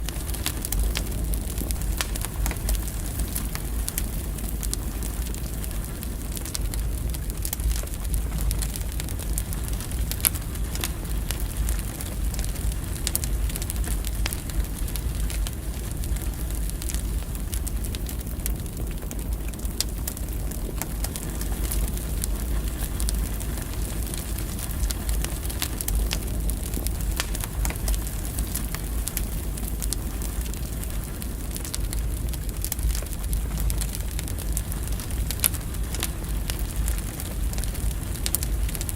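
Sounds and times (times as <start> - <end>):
firewood crackling and popping: 0.0 - 38.9
flames rumbling in a fireplace: 0.0 - 38.9.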